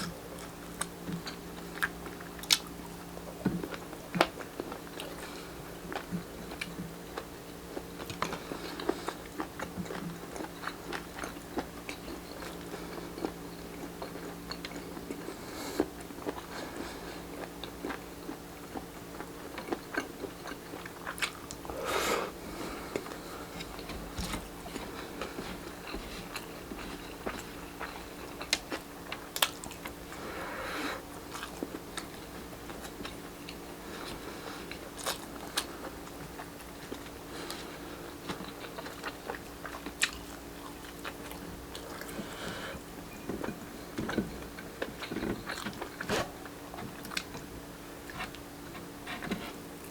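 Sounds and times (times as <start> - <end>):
chewing and mouth smacks: 0.0 - 21.7, 22.9 - 30.2, 31.1 - 42.2, 43.4 - 49.4
steady low hum: 0.0 - 49.9.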